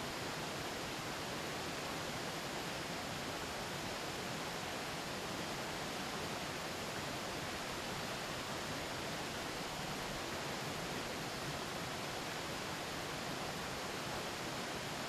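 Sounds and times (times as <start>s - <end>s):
mountain river rushing: 0.0s - 15.0s.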